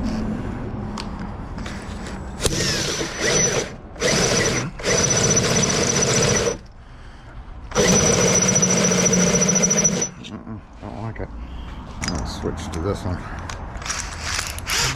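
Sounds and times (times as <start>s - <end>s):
power drill boring into steel: 2.4s - 6.6s, 7.7s - 10.2s, 13.8s - 14.9s.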